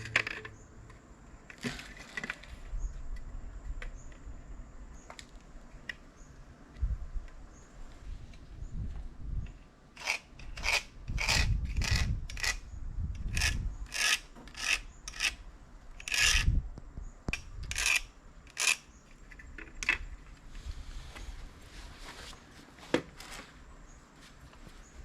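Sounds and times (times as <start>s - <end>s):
rasping scrapes: 10.0s - 12.6s, 13.2s - 15.4s, 16.0s - 16.6s.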